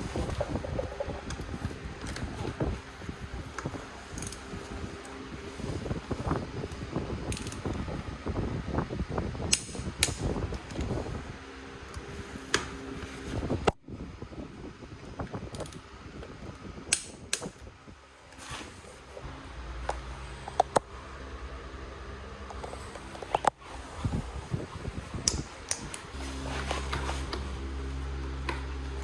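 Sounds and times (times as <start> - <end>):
handling noise: 0.0 - 8.1, 22.6 - 29.0
steady low hum: 0.0 - 29.0.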